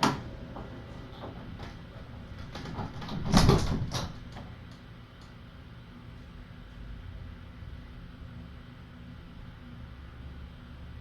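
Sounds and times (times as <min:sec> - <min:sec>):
door shutting with rattles: 0:00.0 - 0:04.8.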